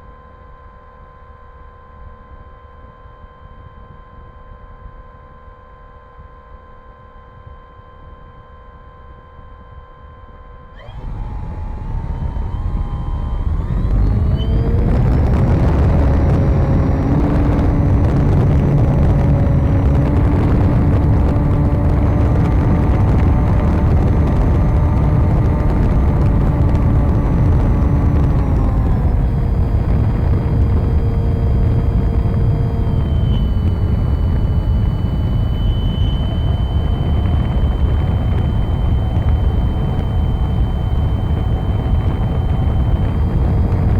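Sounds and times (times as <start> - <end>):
electric motor and propeller whining: 10.8 - 43.9.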